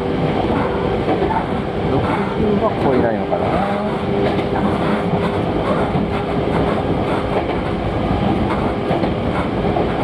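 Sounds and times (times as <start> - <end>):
train wheels rumbling on rail: 0.0 - 10.0
light rail clicks: 4.2 - 10.0.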